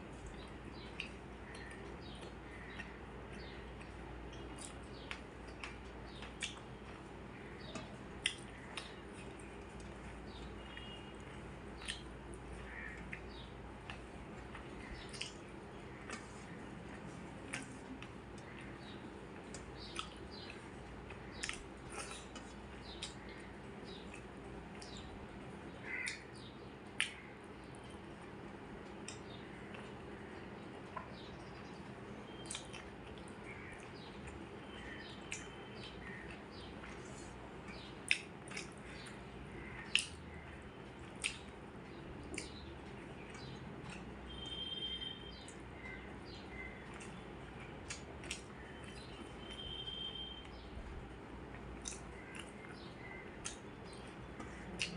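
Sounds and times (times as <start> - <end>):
food being mixed and chewed: 0.0 - 26.1, 26.9 - 44.4, 45.5 - 50.6, 51.2 - 54.9
mouth smacks: 41.2 - 41.5, 54.6 - 54.9.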